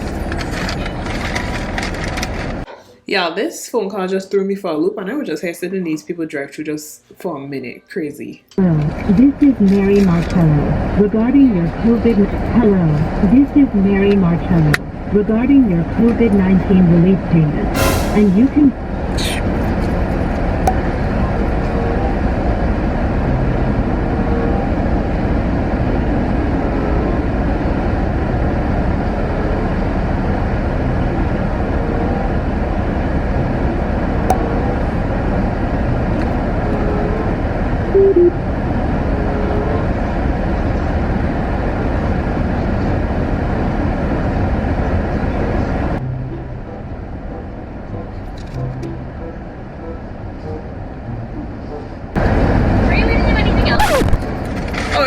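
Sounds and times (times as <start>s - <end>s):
car idling rumble: 0.0s - 2.7s
two-note tone: 20.6s - 22.4s, 34.2s - 35.1s, 46.0s - 51.8s.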